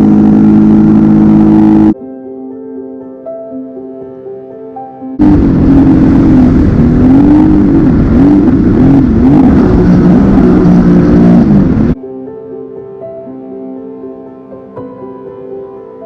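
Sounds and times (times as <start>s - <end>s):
jet ski engine revving: 0.0s - 2.0s, 5.2s - 12.0s.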